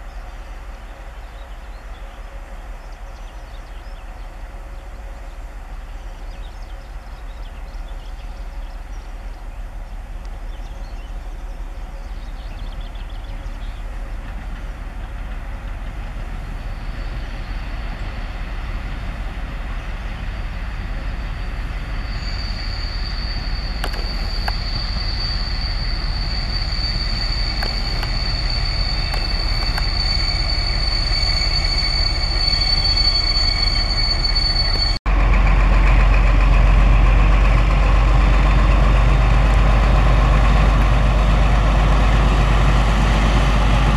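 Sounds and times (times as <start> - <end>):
diesel locomotive engine rumble: 0.0 - 43.9
high-pitched wheel and brake squeal: 20.2 - 35.0.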